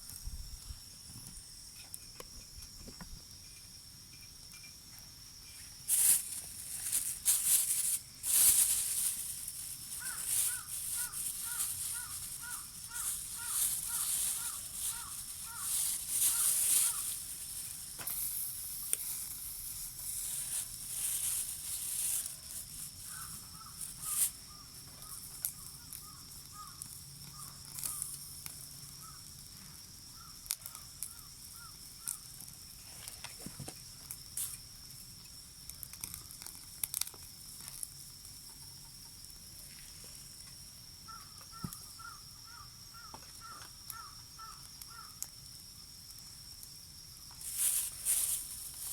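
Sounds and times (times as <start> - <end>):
high insect trill: 0.0 - 48.9
rustling: 5.9 - 24.4, 47.4 - 48.9.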